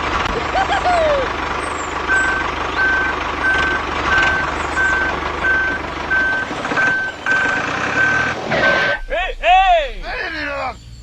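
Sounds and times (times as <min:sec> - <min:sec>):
reversing beeper: 0:02.1 - 0:10.8.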